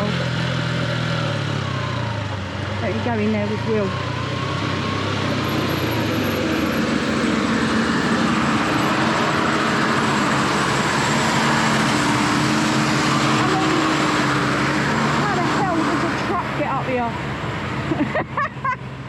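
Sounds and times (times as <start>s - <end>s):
motorcycle engine running: 1.1s - 17.3s
broad rushing noise: 4.7s - 17.4s.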